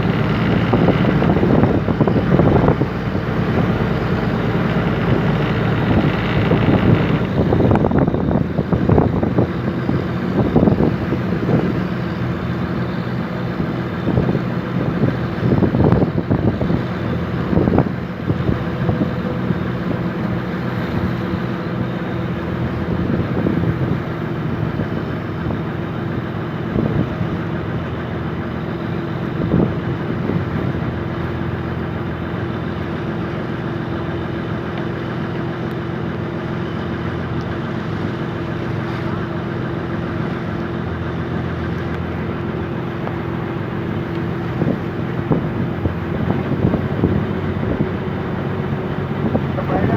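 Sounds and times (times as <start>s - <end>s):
wind buffeting microphone: 0.0s - 31.8s, 42.0s - 49.9s
boat engine running: 0.0s - 49.9s.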